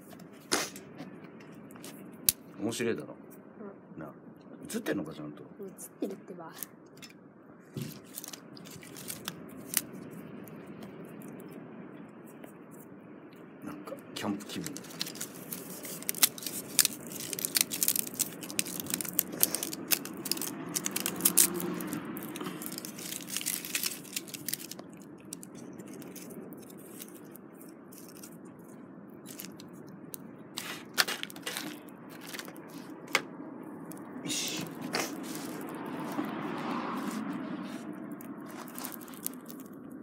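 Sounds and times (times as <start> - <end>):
wood fire crackling and snapping: 7.9 - 10.0, 14.2 - 28.5, 29.3 - 33.2, 38.2 - 39.8.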